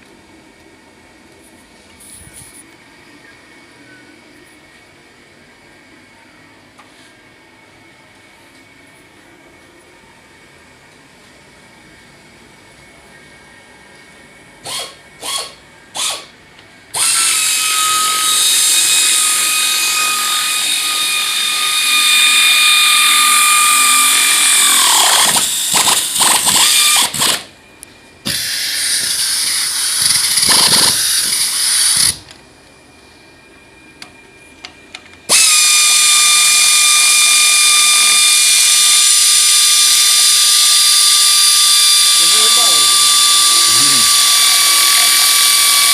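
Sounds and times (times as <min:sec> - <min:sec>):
electric power drill whining: 0:14.6 - 0:16.3, 0:16.9 - 0:27.5, 0:28.3 - 0:32.3, 0:35.3 - 0:45.9.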